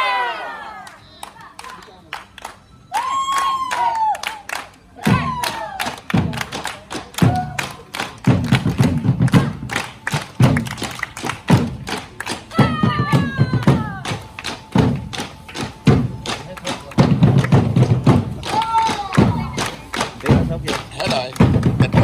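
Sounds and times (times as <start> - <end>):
quick sharp drum taps: 6.1 - 22.0
deep drum thumps: 8.2 - 22.0
falling cries: 12.5 - 14.5, 18.1 - 20.4.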